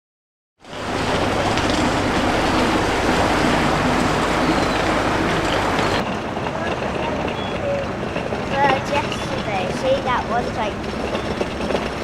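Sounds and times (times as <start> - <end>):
train rumbling on rails: 0.6 - 12.0
faint rail clicks: 4.5 - 12.0.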